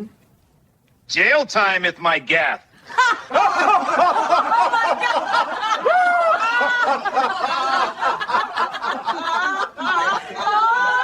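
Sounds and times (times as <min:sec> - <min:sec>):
people laughing: 0:02.8 - 0:11.0.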